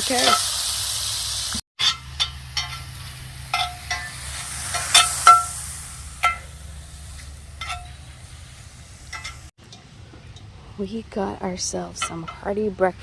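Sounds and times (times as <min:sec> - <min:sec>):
beef sizzling in a pan: 0:00.0 - 0:09.5
metal utensil clinking on pan: 0:01.8 - 0:08.2, 0:09.1 - 0:09.8, 0:11.8 - 0:12.9.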